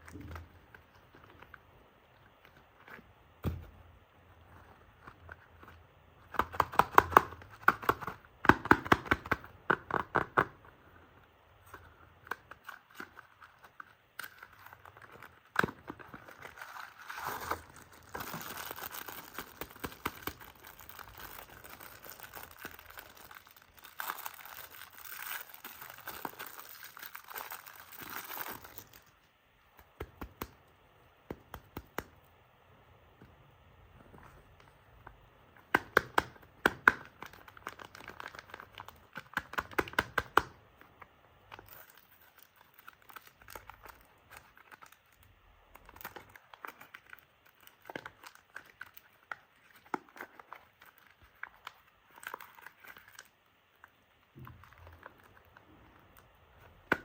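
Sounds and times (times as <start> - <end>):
wrapper tearing and crinkling: 12.5 - 29.2, 37.0 - 40.0, 41.6 - 45.2, 45.8 - 53.4.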